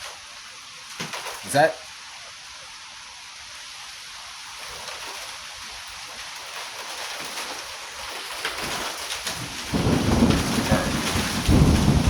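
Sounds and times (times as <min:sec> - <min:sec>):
rain hissing: 0:00.0 - 0:12.0
gusty wind: 0:09.4 - 0:12.0.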